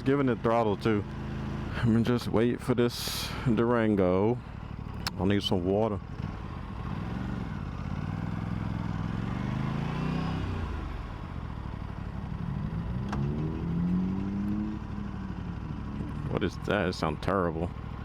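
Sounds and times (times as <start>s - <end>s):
vehicle engine revving: 0.0s - 2.0s, 6.1s - 16.9s.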